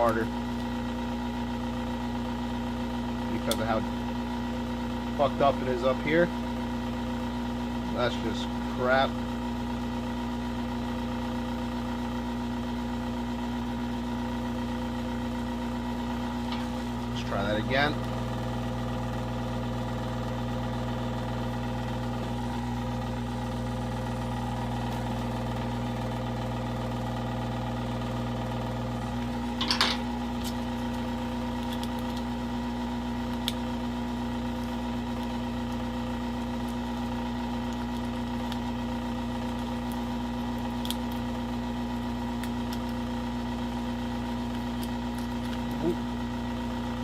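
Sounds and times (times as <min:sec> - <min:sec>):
hot-air gun blower humming: 0:00.0 - 0:47.0
sharp crackle: 0:29.4 - 0:46.2.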